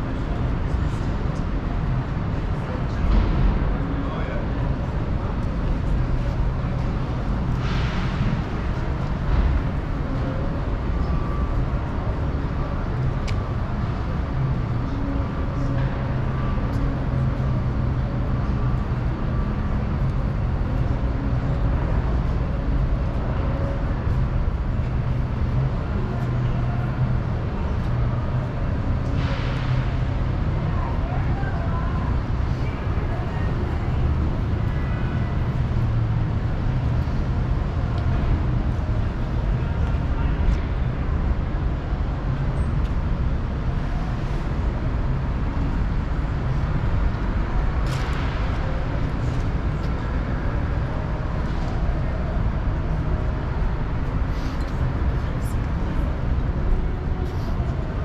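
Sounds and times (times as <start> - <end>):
low vehicle rumble: 0.0 - 58.0.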